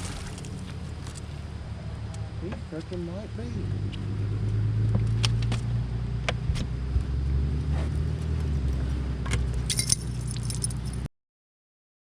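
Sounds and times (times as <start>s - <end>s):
boat motor humming: 0.0s - 5.5s
jangling rattle: 9.6s - 11.1s.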